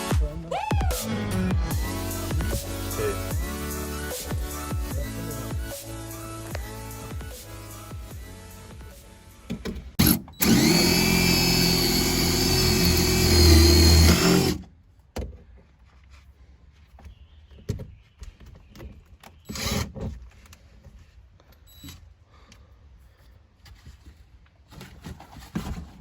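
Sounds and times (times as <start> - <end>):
power drill running: 10.0 - 14.6.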